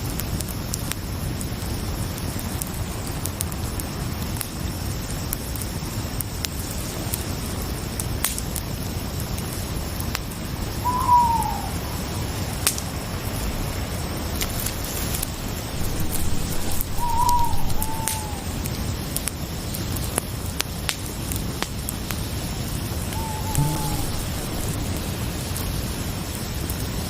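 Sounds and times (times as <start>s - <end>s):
crickets chirring: 10.5s - 12.6s, 13.2s - 19.0s, 23.0s - 25.8s
short falling call: 10.8s - 11.9s, 15.8s - 18.6s, 23.1s - 25.3s
sharp crackles: 12.5s - 27.0s.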